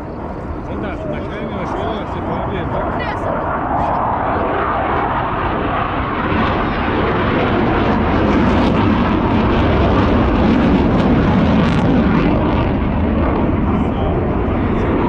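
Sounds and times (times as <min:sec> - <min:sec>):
military aircraft flying past: 0:00.0 - 0:15.0.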